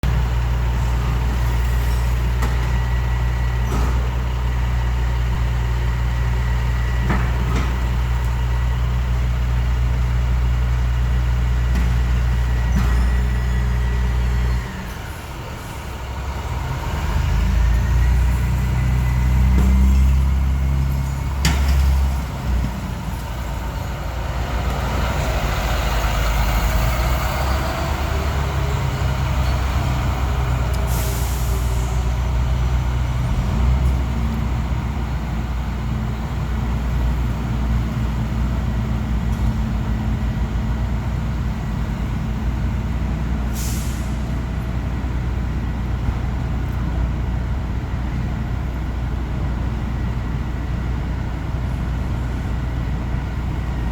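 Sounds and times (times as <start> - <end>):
truck engine running: 0.0 - 53.9
air brake hisses: 30.7 - 32.1, 43.5 - 44.4.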